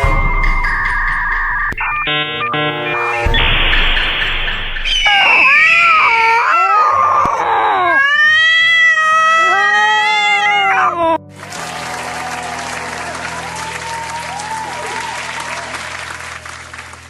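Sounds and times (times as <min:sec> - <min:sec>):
cat yowling: 0:05.1 - 0:11.2.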